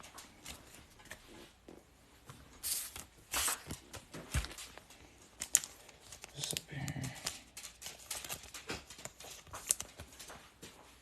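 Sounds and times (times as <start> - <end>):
cards and packaging rustling: 2.5 - 10.6.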